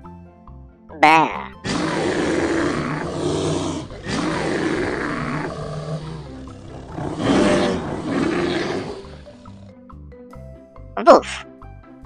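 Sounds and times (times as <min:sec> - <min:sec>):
bear growling: 0:01.6 - 0:09.8.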